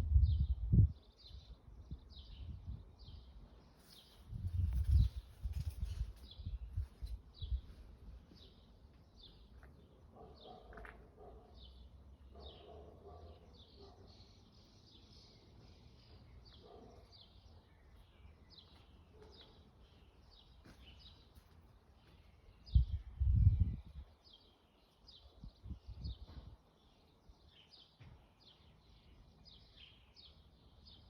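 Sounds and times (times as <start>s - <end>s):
birds chirping: 1.0s - 23.0s.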